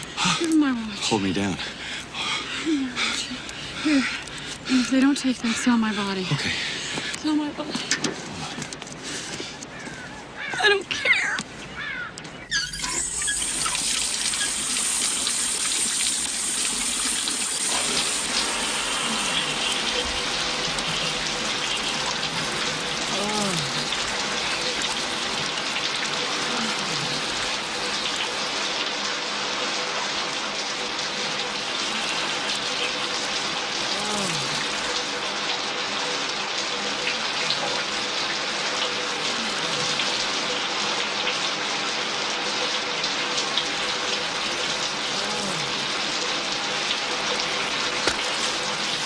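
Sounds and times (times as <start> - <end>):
falling water hiss: 12.7 - 49.0.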